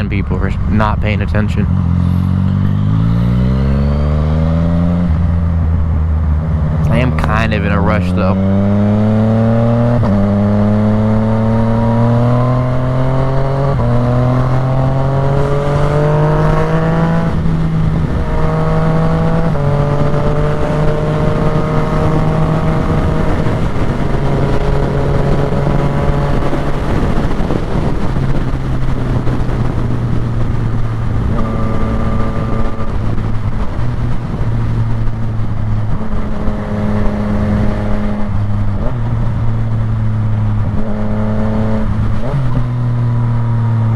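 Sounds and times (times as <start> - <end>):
motorcycle engine accelerating: 0.0 - 43.9
wind rush: 12.1 - 43.9.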